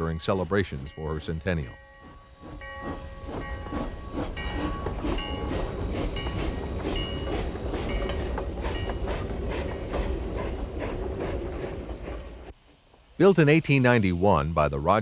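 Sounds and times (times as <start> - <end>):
steam locomotive chuffing: 0.0 - 12.6
metallic ringing tones: 0.0 - 15.0.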